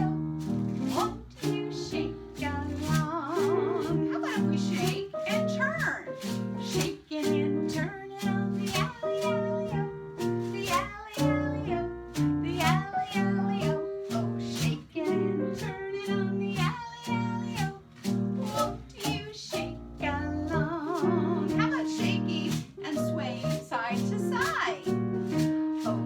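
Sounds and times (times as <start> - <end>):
person singing: 0.0 - 6.1, 6.7 - 17.8.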